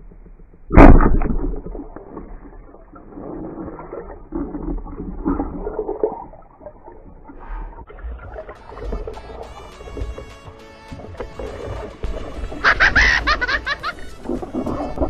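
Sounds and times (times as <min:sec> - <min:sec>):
underwater gurgling and bubbling: 0:00.0 - 0:15.0
loud splash: 0:08.2 - 0:15.0.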